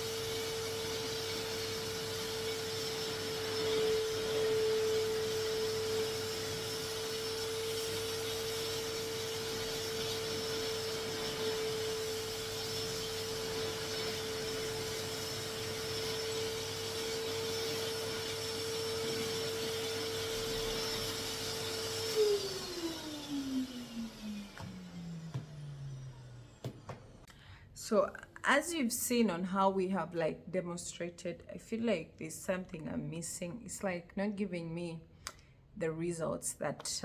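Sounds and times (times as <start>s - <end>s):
vacuum cleaner motor whine: 0.0s - 27.3s.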